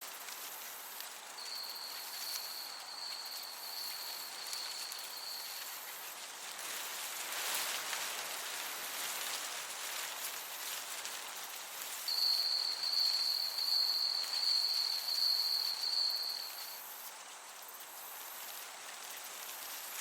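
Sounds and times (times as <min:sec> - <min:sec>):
crickets chirping: 0:00.0 - 0:08.5, 0:09.8 - 0:20.0
gentle breeze: 0:00.0 - 0:20.0
steady high hiss: 0:00.0 - 0:20.0
cricket high steady trill: 0:01.4 - 0:06.8, 0:11.8 - 0:17.2.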